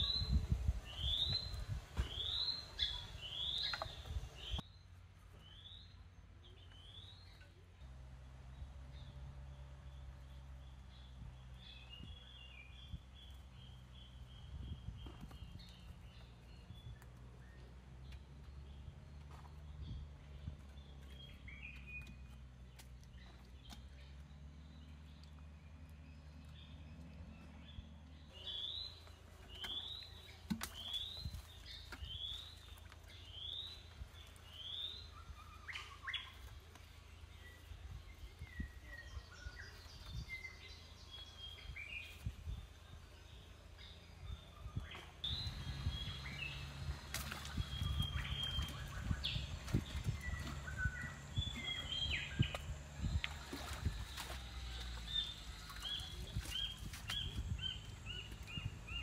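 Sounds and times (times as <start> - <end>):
birds chirping: 0.0 - 59.0
low rumble: 37.0 - 59.0.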